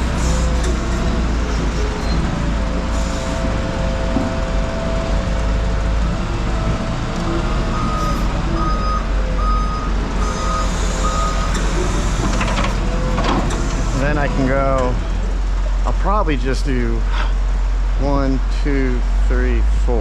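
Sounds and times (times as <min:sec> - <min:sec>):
vehicle engine whining: 0:00.0 - 0:20.0
reverse warning alarm beeps: 0:01.9 - 0:02.4, 0:07.7 - 0:14.8.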